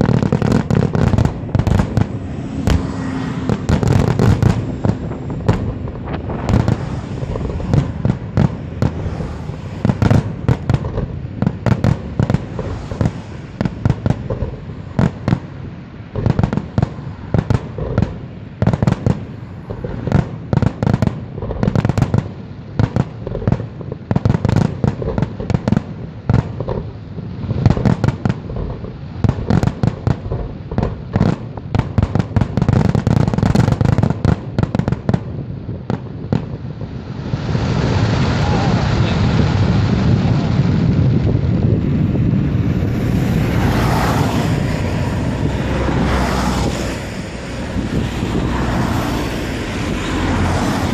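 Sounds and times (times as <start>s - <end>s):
fireworks bursts and bangs: 0.0s - 50.9s
low rumble: 0.9s - 11.4s, 38.3s - 50.9s.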